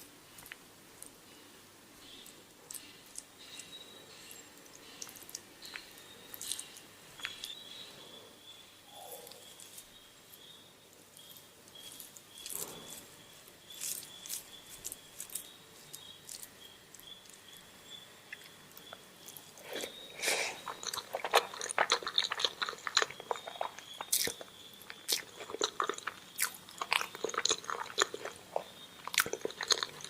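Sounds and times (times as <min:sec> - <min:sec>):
person chewing food: 0:02.0 - 0:07.8, 0:11.2 - 0:17.6, 0:18.2 - 0:30.0.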